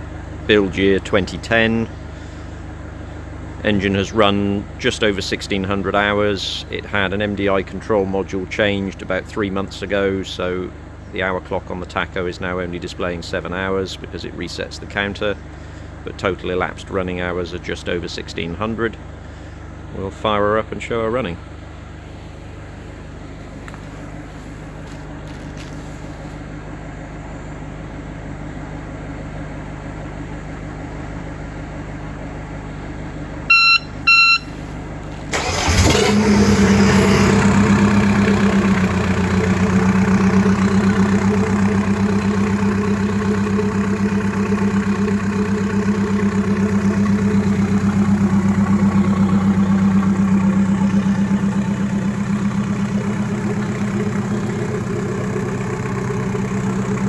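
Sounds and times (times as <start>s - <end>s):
diesel engine idling: 0.0s - 57.0s
short electronic beeps: 33.5s - 34.6s
engine starter cranking: 35.1s - 57.0s.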